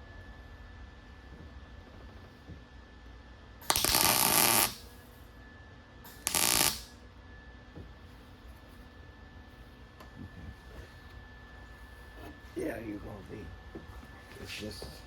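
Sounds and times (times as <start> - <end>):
welder crackling: 3.6 - 5.0, 6.1 - 7.0.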